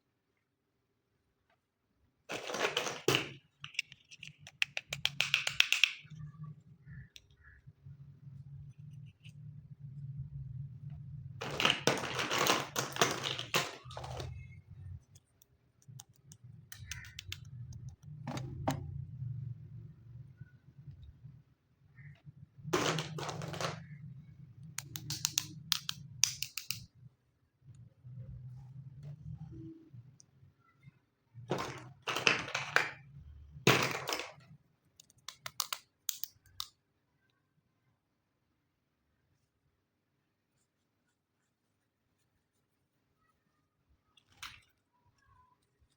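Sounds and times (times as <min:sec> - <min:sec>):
plastic pieces clattering: 0:02.3 - 0:04.6, 0:11.4 - 0:14.4, 0:22.8 - 0:23.9, 0:31.5 - 0:33.0, 0:33.7 - 0:34.4
plastic toy pieces clicking and rattling: 0:02.3 - 0:06.2, 0:11.4 - 0:14.5, 0:22.8 - 0:23.9, 0:24.8 - 0:26.9, 0:33.7 - 0:36.7
faint low hum: 0:06.0 - 0:26.2.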